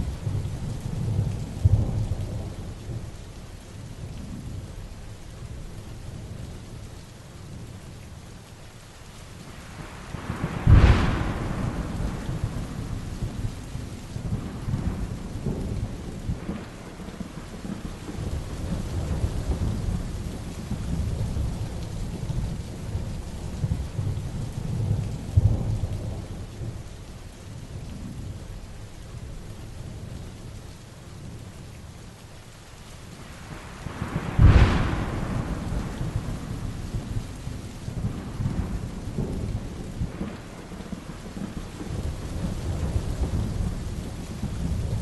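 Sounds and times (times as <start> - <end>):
heavy rain: 0.0 - 45.0
thunder rumbling: 9.7 - 26.9, 33.3 - 45.0.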